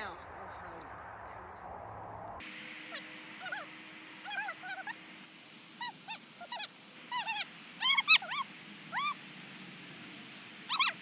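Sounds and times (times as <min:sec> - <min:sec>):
dog whining: 0:10.7 - 0:11.0.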